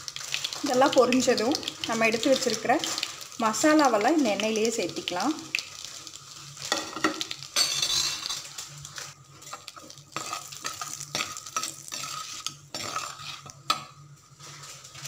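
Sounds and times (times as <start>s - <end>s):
spices sizzling in hot oil: 0.0s - 15.0s
steel spoon scraping a pot: 10.2s - 13.8s.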